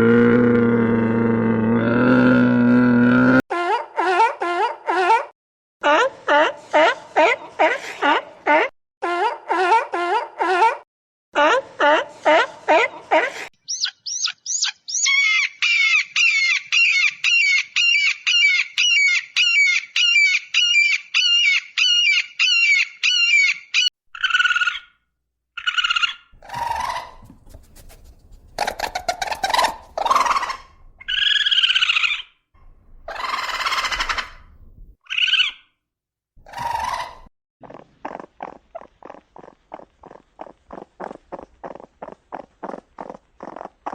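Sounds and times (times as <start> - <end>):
varied animal calls: 13.7 - 25.0, 25.6 - 32.4, 33.0 - 35.8, 36.4 - 43.9.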